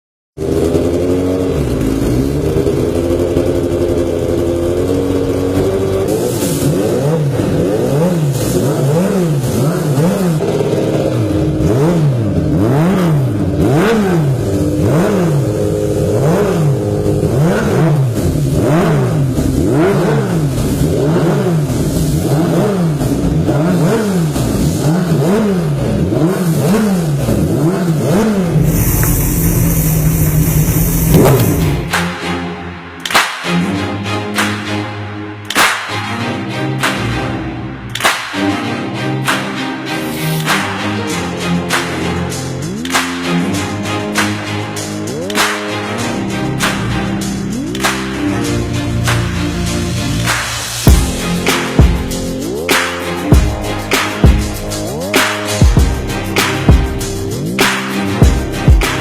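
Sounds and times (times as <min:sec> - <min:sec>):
racing motorcycle engines revving: 0:00.4 - 0:32.0.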